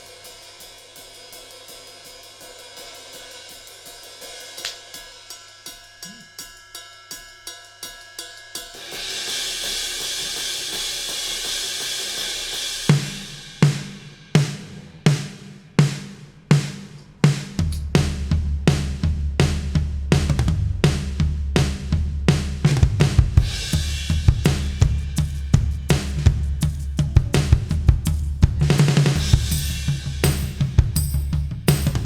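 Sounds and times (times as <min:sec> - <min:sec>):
cymbal wash: 0:00.0 - 0:15.7
deep bass line: 0:17.6 - 0:32.0.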